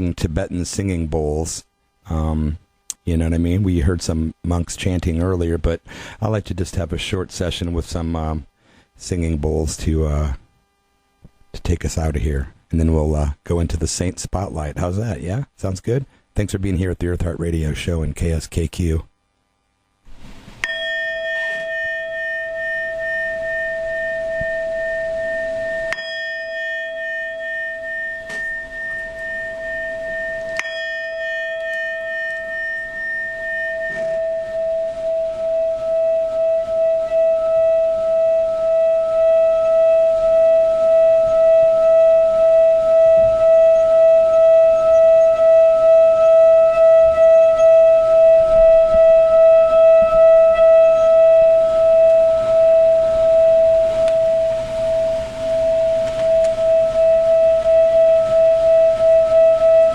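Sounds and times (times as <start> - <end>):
higher bowl tone: 0.0 - 10.7, 19.9 - 59.9
singing bowls ringing: 20.6 - 59.9.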